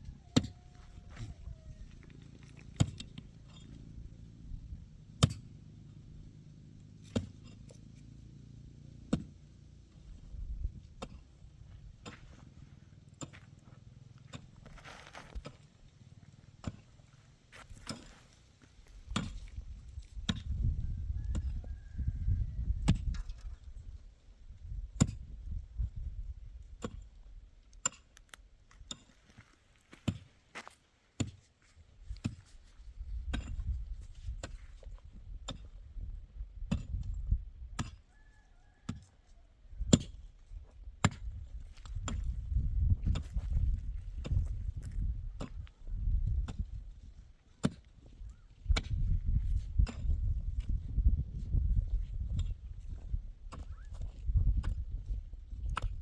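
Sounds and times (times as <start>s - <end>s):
tool knocks and chops: 2.7s - 3.8s, 5.2s - 5.5s, 7.0s - 7.7s, 9.0s - 9.4s, 11.0s - 11.2s, 14.3s - 15.6s, 16.6s - 16.9s, 17.6s - 18.3s, 19.1s - 19.5s, 20.1s - 20.6s, 22.8s - 23.3s, 25.0s - 25.3s, 26.8s - 27.0s, 30.0s - 30.3s, 31.2s - 31.5s, 32.2s - 32.6s, 33.3s - 35.8s, 36.7s - 37.2s, 37.8s - 38.0s, 39.9s - 40.2s, 41.0s - 42.4s, 43.0s - 45.7s, 46.4s - 50.9s, 52.2s - 56.0s.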